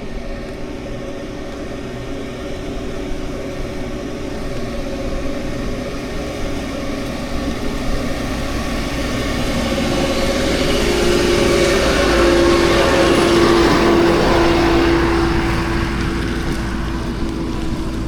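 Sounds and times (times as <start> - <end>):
road and wind noise: 0.0 - 18.0
vehicle engine hum: 0.0 - 18.0.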